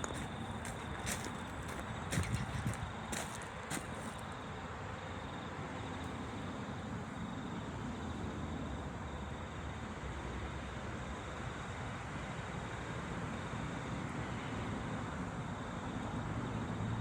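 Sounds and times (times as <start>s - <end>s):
train rumbling: 0.0s - 4.4s.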